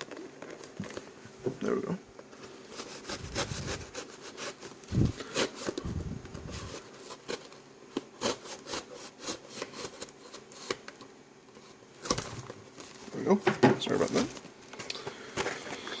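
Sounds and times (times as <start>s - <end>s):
knife cutting shrink-wrap and cardboard: 2.4s - 11.0s, 11.6s - 12.9s.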